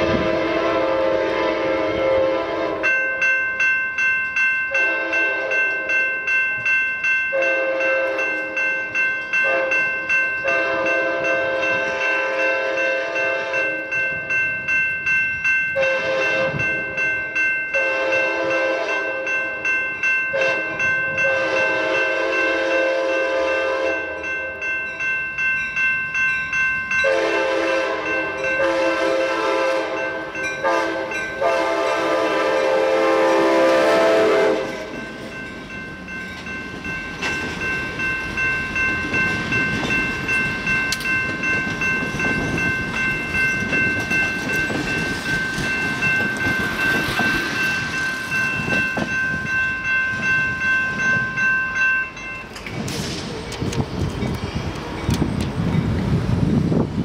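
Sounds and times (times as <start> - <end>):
locomotive air horn blasts: 0.0 - 2.9, 4.8 - 5.7, 7.4 - 8.3, 9.4 - 9.8, 10.4 - 13.9, 15.8 - 16.8, 17.8 - 19.2, 20.4 - 24.2, 27.0 - 34.9
train wheels rumbling on track: 0.0 - 57.0
bell ringing rapidly: 2.8 - 22.5, 24.0 - 27.1, 29.9 - 32.1, 34.9 - 52.6.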